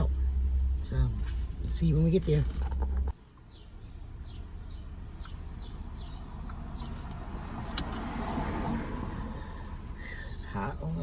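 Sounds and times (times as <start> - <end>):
steady low rumble: 0.0 - 3.2
bird chirping: 1.6 - 7.9.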